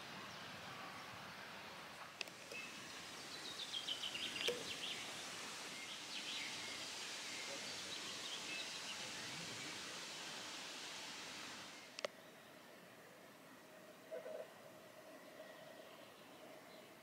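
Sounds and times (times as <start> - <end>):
outdoor background hiss: 0.0 - 17.0
small birds chirping: 2.2 - 10.2.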